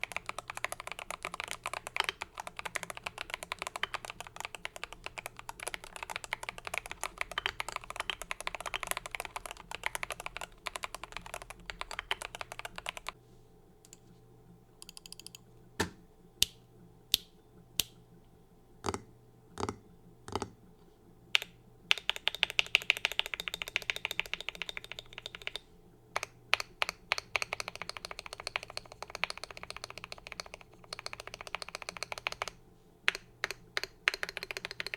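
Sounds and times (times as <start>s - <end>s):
typing on mechanical keyboard: 0.0s - 13.2s, 21.4s - 25.6s, 26.2s - 34.9s.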